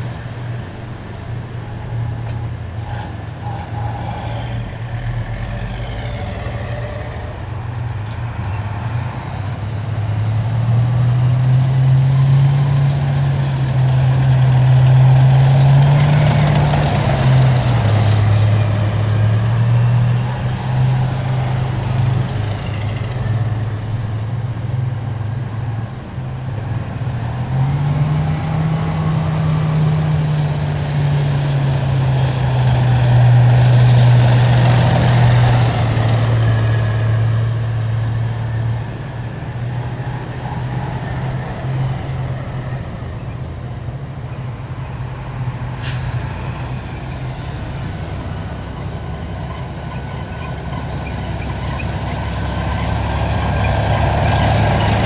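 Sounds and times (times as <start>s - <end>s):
heavy diesel vehicles driving past: 0.0s - 55.0s
air brakes hissing: 44.2s - 52.0s.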